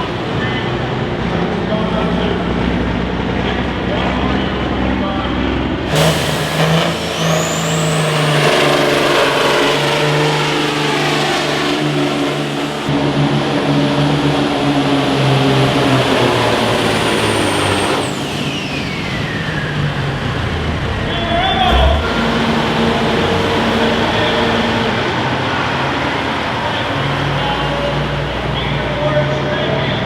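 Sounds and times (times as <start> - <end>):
tractor engine at full throttle: 0.0 - 30.0
high whine: 21.6 - 25.1.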